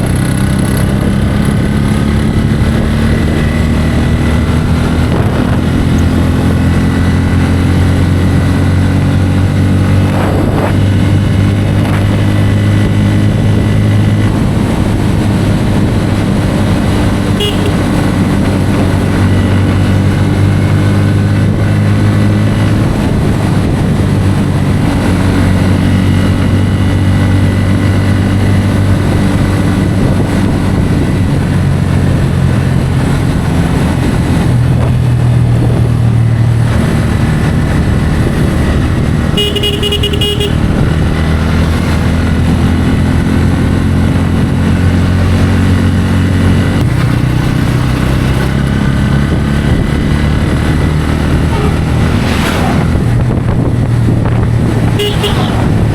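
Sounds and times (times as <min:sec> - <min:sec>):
motorcycle engine running: 0:00.0 - 0:55.9
vehicle horn: 0:17.3 - 0:18.0, 0:39.3 - 0:40.9, 0:54.9 - 0:55.8.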